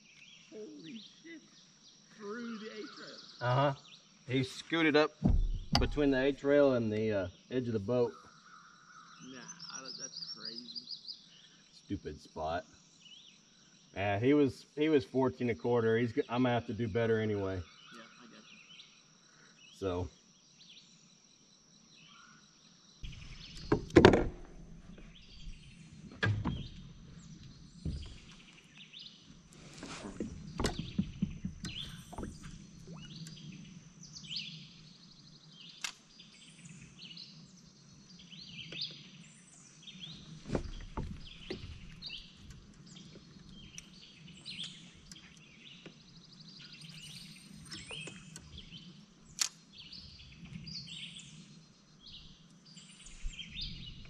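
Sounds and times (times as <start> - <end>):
songbirds chirping: 0.0 - 54.0
knocks and thumps: 5.2 - 6.4, 23.0 - 28.4, 29.6 - 33.1, 40.4 - 42.1.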